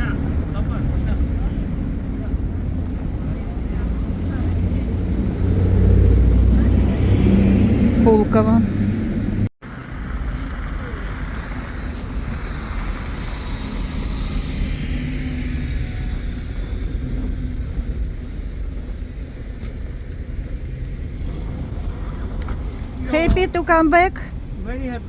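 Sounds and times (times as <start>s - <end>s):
car engine and road rumble: 0.0s - 25.0s.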